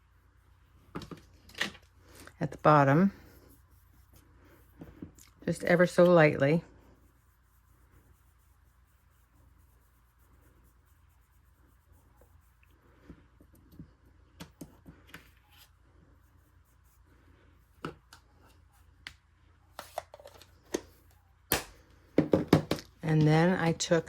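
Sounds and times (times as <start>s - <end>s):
brush rubbing on cardstock: 2.6s - 13.4s, 15.3s - 19.0s.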